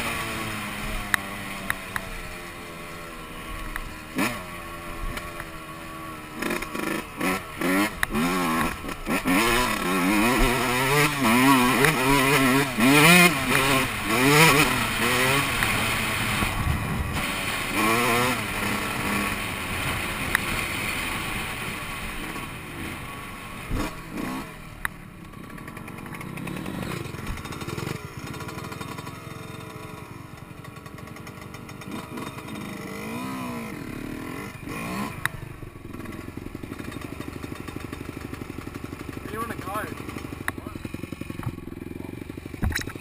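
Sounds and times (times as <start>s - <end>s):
dirt bike engine revving: 0.0s - 43.0s
sharp engine knocks: 42.5s - 43.0s.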